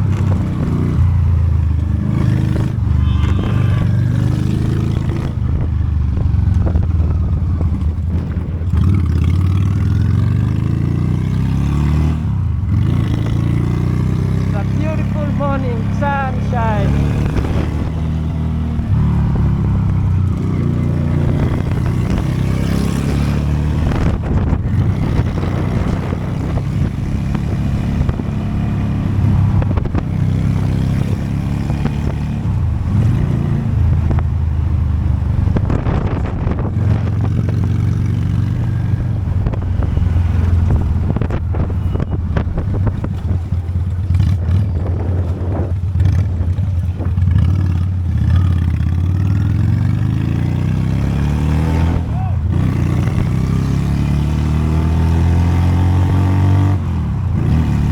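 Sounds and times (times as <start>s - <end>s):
wind noise on microphone: 0.0s - 9.9s, 16.1s - 48.2s
motorcycle engine running: 0.0s - 57.9s.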